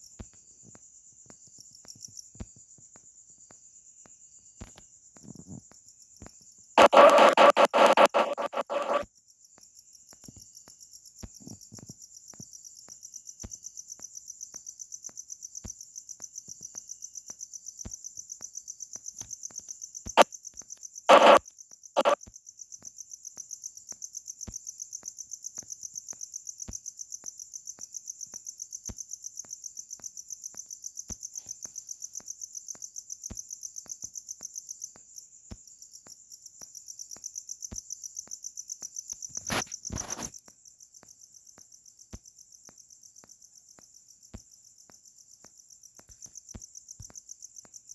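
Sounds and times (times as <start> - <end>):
cricket chirping: 0.0 - 47.9
loud bursts of noise: 6.8 - 9.0, 21.1 - 21.4.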